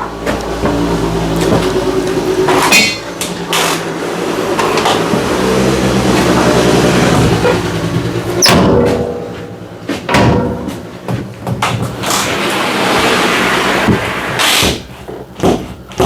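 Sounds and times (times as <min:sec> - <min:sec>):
sharp metal knocks: 0:02.5 - 0:03.4, 0:08.4 - 0:12.0.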